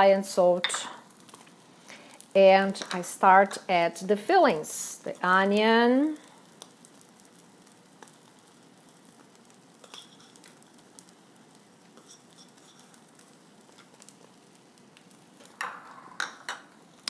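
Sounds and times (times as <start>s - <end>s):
eggs sizzling in a frying pan: 0.0s - 17.0s
light ticks of onion sprinkled: 6.2s - 15.2s.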